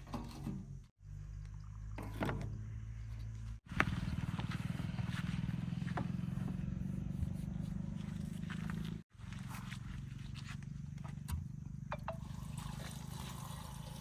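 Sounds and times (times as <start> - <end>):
engine with rapid even pulsing: 3.6 - 13.5.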